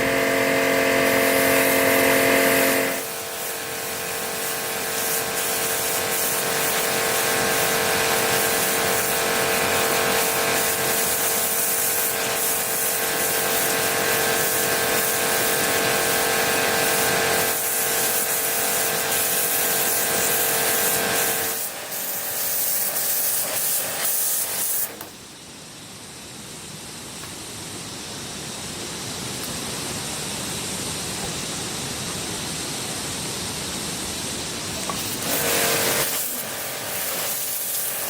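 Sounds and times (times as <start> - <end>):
power tool whining: 0.0 - 3.2, 34.9 - 38.0.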